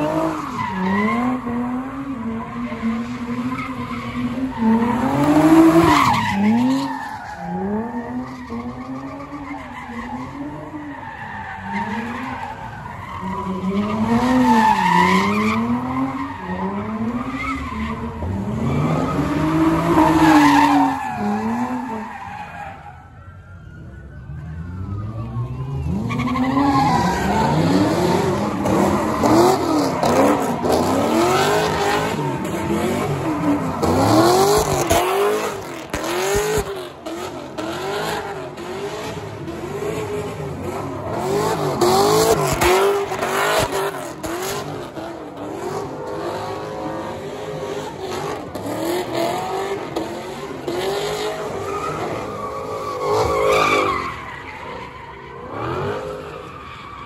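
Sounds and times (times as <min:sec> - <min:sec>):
car engine revving: 0:25.8 - 0:54.4.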